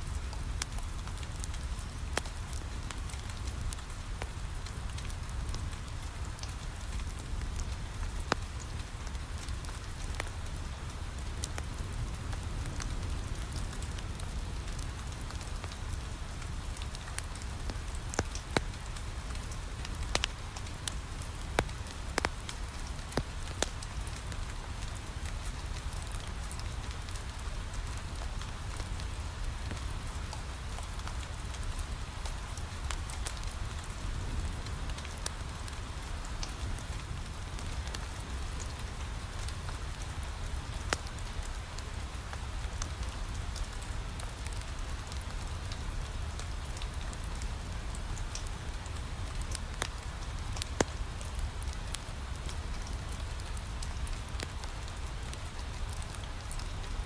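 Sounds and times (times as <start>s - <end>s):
crackling wood fire: 0.0s - 57.0s
rain on window glass: 0.2s - 57.0s
sharp pops from fire: 19.8s - 23.8s.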